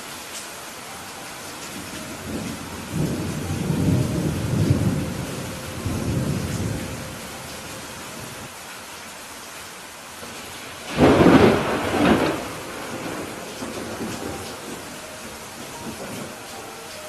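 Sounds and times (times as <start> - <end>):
steady rain hiss: 0.0 - 17.0
thunder rumble: 1.8 - 8.5, 10.8 - 16.6.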